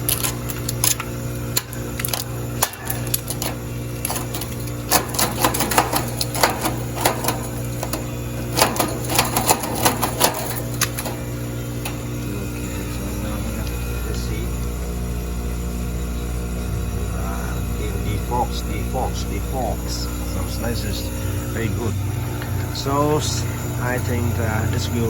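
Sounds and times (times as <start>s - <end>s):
ice cracking off coil: 0.0s - 14.8s
heat pump humming: 0.0s - 25.0s.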